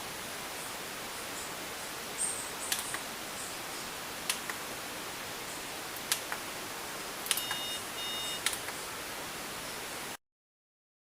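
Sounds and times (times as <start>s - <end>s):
steady hiss: 0.0s - 10.2s
short electronic beeps: 7.3s - 8.5s
button clicks: 7.3s - 8.8s.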